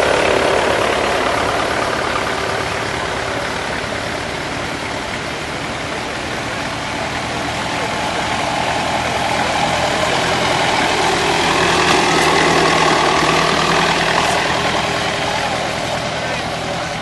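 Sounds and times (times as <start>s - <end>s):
tractor engine driving past: 0.0s - 17.0s.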